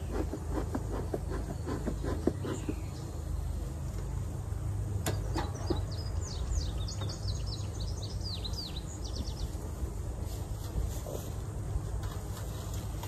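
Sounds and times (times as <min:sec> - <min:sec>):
songbird singing: 0:00.0 - 0:10.2.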